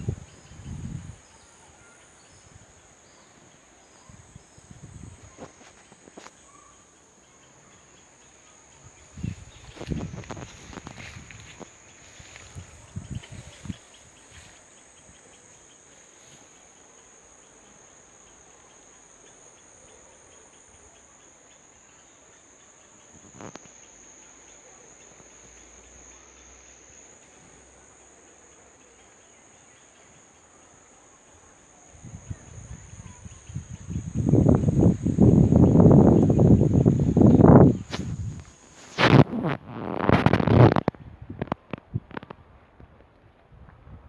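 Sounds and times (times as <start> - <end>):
high-pitched insect chorus: 0.0 - 42.3
faint hiss: 0.0 - 44.0.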